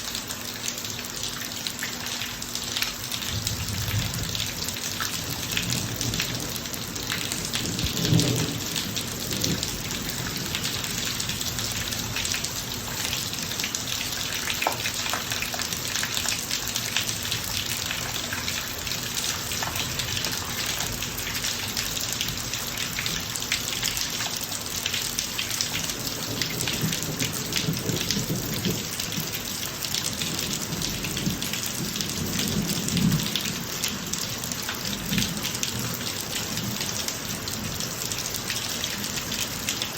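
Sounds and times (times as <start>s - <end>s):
rain falling on a driveway: 0.0s - 39.9s
low thunder rumbling: 3.3s - 12.2s, 26.0s - 29.3s.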